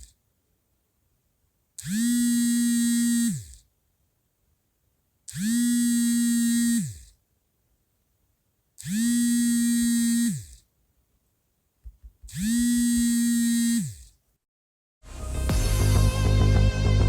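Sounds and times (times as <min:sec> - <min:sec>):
phone vibration buzzing: 0:01.8 - 0:03.7, 0:05.3 - 0:07.2, 0:08.8 - 0:10.7, 0:11.9 - 0:14.2.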